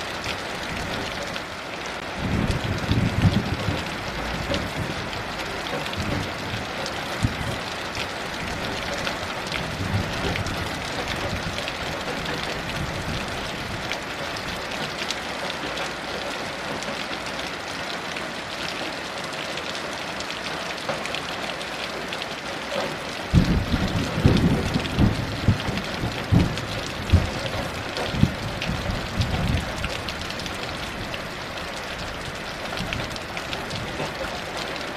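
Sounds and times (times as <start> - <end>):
heavy rain: 0.0 - 34.9
thunder rumble: 2.1 - 7.6, 8.4 - 14.6, 23.3 - 31.4.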